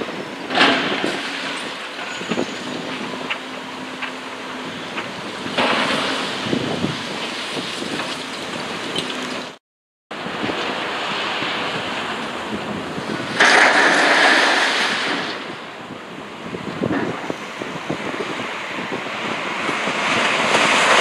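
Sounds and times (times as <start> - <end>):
wind noise on microphone: 0.0 - 3.5, 4.6 - 9.6, 10.2 - 21.0.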